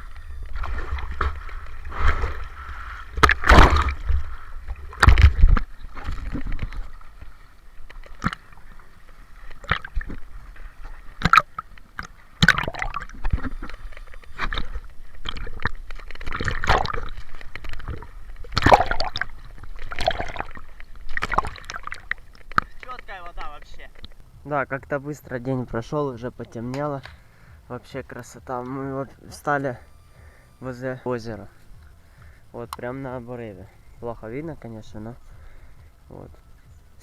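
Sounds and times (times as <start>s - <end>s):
water splashing from swimming: 0.0s - 24.4s.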